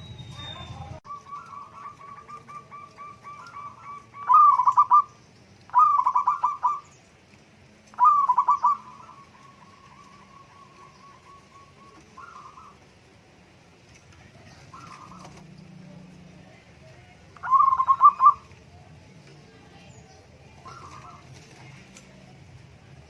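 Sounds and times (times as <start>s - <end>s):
dove cooing: 1.1s - 6.9s, 7.9s - 13.1s, 14.2s - 16.5s, 17.3s - 18.7s, 20.5s - 22.3s.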